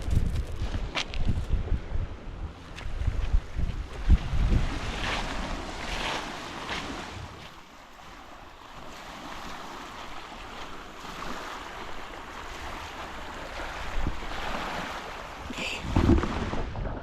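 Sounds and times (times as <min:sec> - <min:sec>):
wind buffeting microphone: 0:00.0 - 0:07.4, 0:13.6 - 0:14.9, 0:15.8 - 0:17.0
ocean surf washing on shore: 0:03.4 - 0:17.0.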